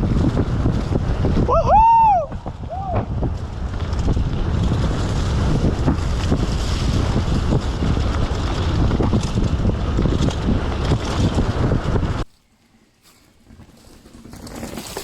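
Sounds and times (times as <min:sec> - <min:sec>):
wind buffeting microphone: 0:00.0 - 0:12.3
bike knocks and rattles: 0:02.2 - 0:12.3, 0:13.0 - 0:15.0.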